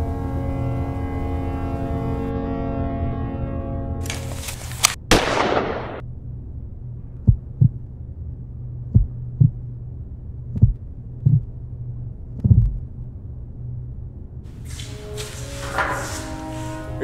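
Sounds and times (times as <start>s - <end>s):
steady low hum: 0.0s - 17.0s
heartbeat thumps: 7.2s - 7.9s, 8.9s - 9.7s, 10.5s - 11.6s, 12.4s - 12.8s.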